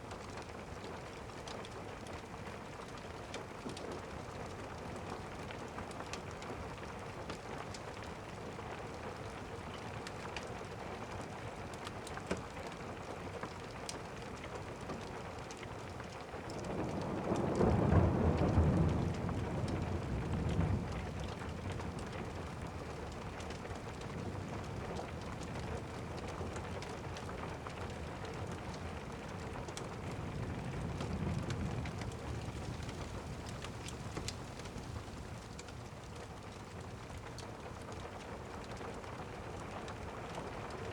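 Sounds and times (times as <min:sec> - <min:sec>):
steady rain: 0:00.0 - 0:40.9
thunder rumbling: 0:16.7 - 0:35.7.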